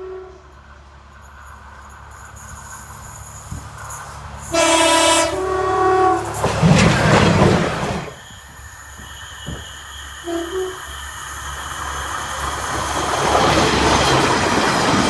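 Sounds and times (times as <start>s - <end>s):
train two-tone horn: 0.0s - 0.6s, 4.4s - 6.5s, 10.2s - 11.0s
train rumbling past: 0.0s - 15.0s.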